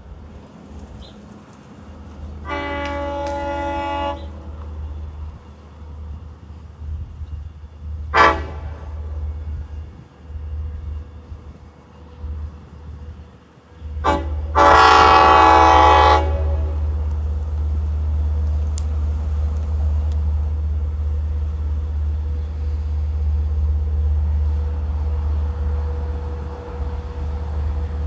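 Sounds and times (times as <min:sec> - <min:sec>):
locomotive low rumble: 0:00.0 - 0:28.0
train horn blasts: 0:02.0 - 0:05.6, 0:08.0 - 0:10.0, 0:13.8 - 0:17.4.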